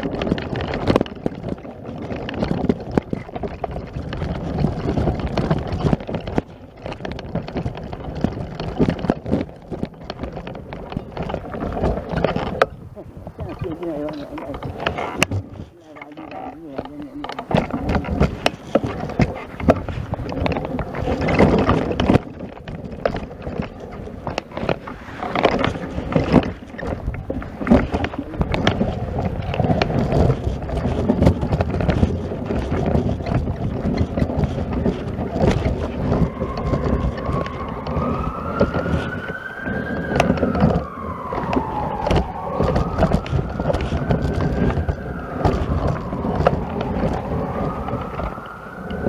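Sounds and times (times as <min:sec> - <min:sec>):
emergency siren wailing: 0:34.6 - 0:49.0.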